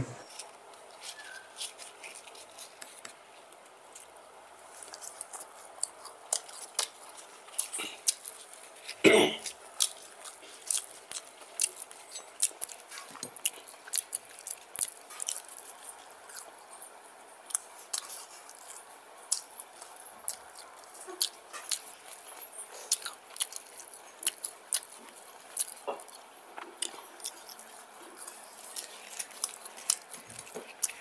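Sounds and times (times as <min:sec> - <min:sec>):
man chewing with mouth open: 0:00.3 - 0:31.0.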